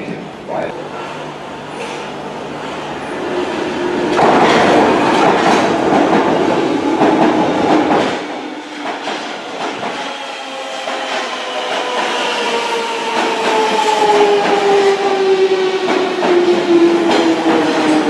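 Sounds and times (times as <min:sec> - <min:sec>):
train wheels clattering over rails: 0:01.7 - 0:18.0.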